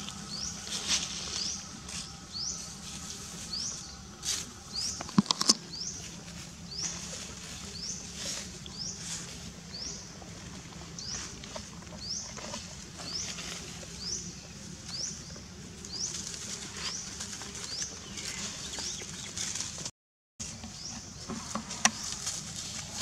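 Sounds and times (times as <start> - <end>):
bird chirping: 0.0 - 10.2.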